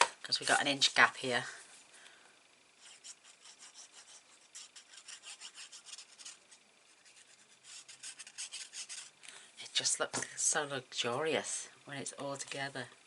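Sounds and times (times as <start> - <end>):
paper being rubbed: 2.8 - 9.1.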